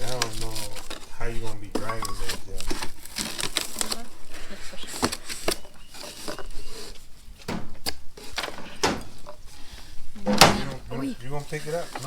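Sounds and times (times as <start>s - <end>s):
packaging rustling: 0.0s - 12.0s
knocks and clicks of car jack: 7.4s - 9.5s, 10.2s - 10.9s.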